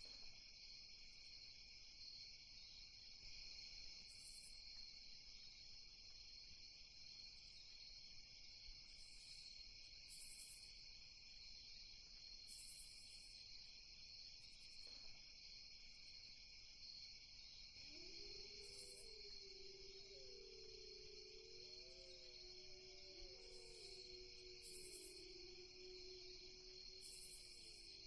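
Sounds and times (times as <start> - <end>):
crickets chirping: 0.0 - 28.0
faint wavering tone: 17.8 - 28.0.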